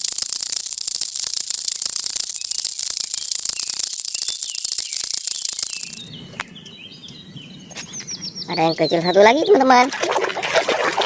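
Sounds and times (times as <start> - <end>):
running water spraying on plastic: 0.0 - 5.5.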